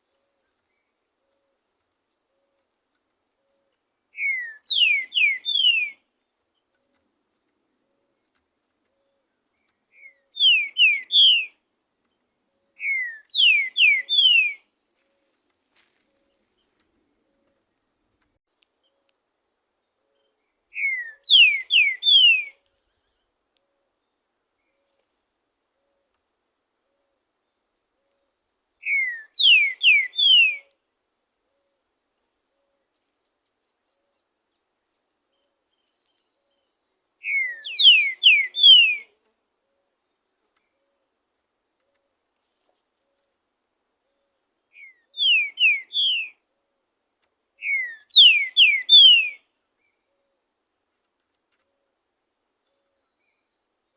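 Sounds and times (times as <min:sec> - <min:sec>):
bird singing whistled notes: 0:03.4 - 0:06.1, 0:09.6 - 0:11.6, 0:12.6 - 0:14.7, 0:20.0 - 0:23.3, 0:28.1 - 0:30.8, 0:35.3 - 0:39.2, 0:44.0 - 0:46.4, 0:47.6 - 0:50.1.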